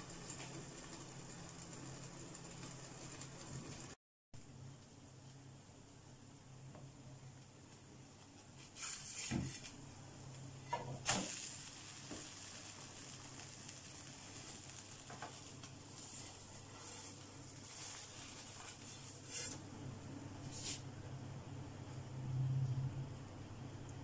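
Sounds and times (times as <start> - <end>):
flatbread sizzling in pan: 0.0 - 4.0, 7.7 - 9.8, 10.5 - 19.6.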